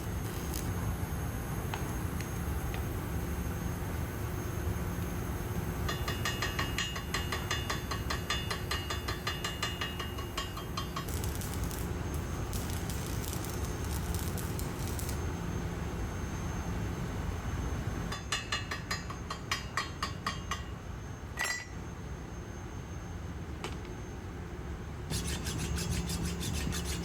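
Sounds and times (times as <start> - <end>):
crackly high hiss: 0.0 - 3.3, 11.1 - 15.5.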